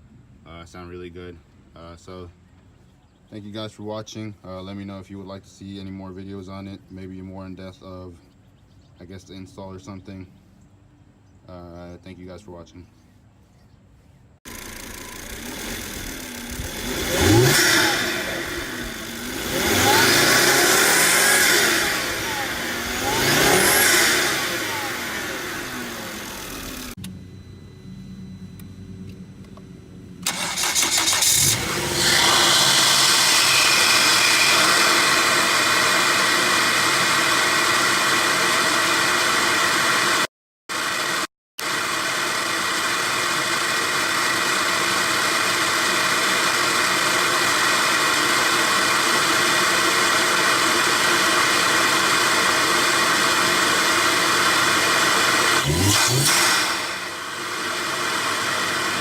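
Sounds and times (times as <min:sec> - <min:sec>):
intake and turbo rush: 0:14.5 - 0:29.0, 0:29.6 - 0:59.0
car engine running hard: 0:14.5 - 0:59.0.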